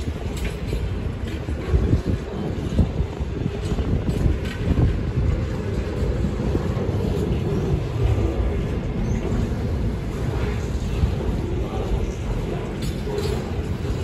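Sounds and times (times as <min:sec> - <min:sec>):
knocks and clatter: 0:00.0 - 0:07.7
train wagons rolling on rails: 0:00.0 - 0:14.0.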